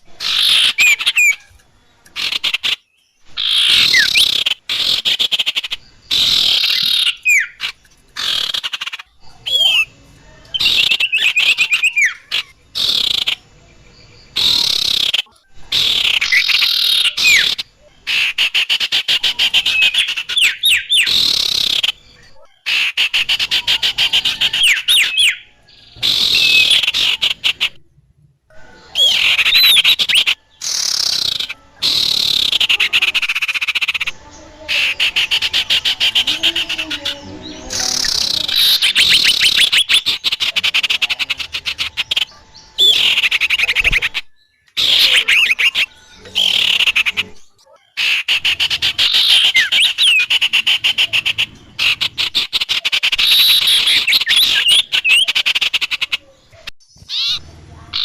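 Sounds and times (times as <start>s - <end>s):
high chattering bird calls: 0.0s - 58.0s.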